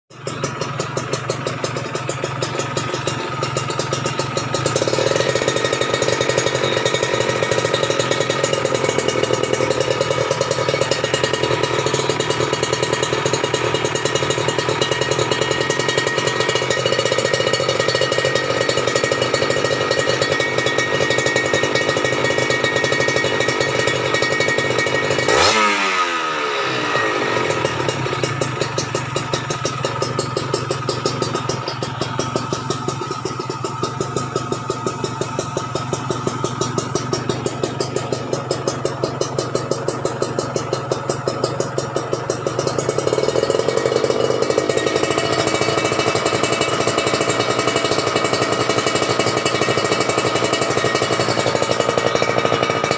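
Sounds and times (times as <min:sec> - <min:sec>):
motorcycle engine revving and idling: 0:00.1 - 0:52.9.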